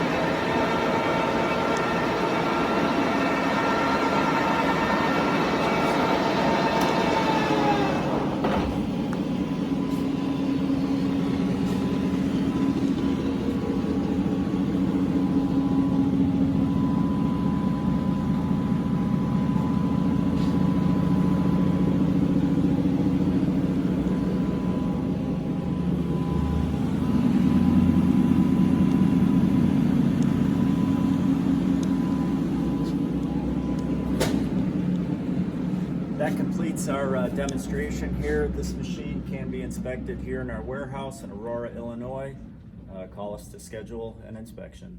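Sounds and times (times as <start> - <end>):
lathe mechanical hum: 0.0 - 43.6
faint high whine: 9.1 - 44.4.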